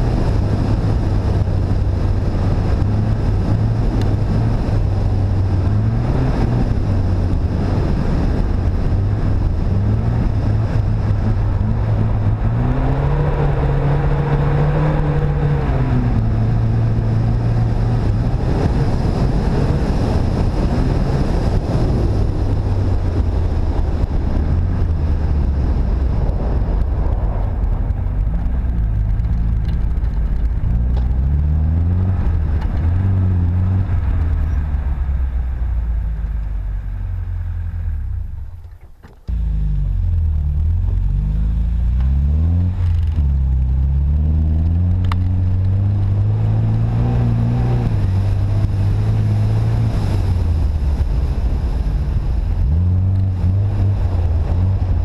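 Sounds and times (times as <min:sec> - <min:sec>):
car engine pulling: 0:00.0 - 0:55.0
road and wind noise: 0:00.0 - 0:55.0.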